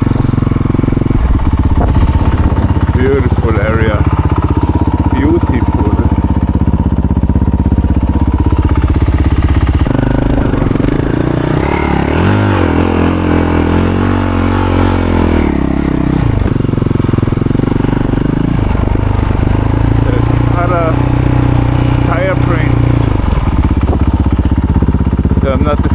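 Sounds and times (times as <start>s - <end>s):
motorcycle engine running: 0.0s - 25.9s.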